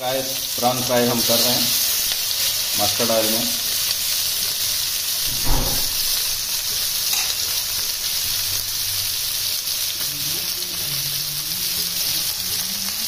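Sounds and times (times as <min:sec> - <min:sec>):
prawns sizzling in oil: 0:00.0 - 0:13.0
dull thump: 0:05.3 - 0:06.0.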